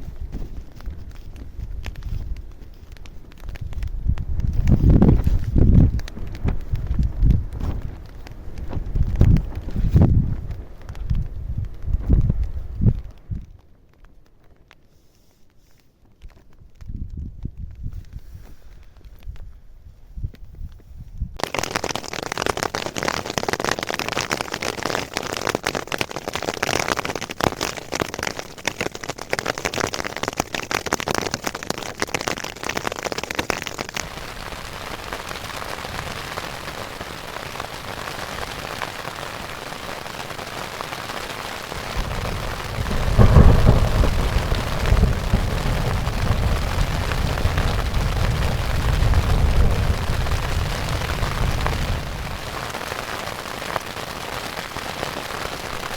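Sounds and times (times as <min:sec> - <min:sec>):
heavy rain pattering: 0:00.0 - 0:14.9, 0:21.4 - 0:55.9
thunder crack and rumble: 0:03.4 - 0:13.4, 0:41.6 - 0:53.1.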